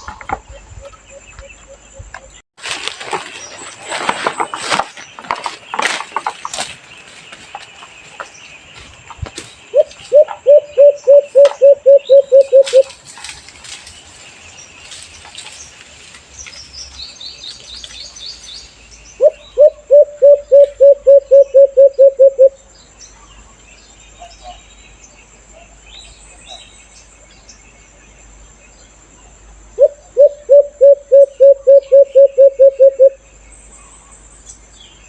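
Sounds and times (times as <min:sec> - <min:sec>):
dove low hooting notes: 0:09.7 - 0:12.9, 0:19.2 - 0:22.6, 0:29.8 - 0:33.2.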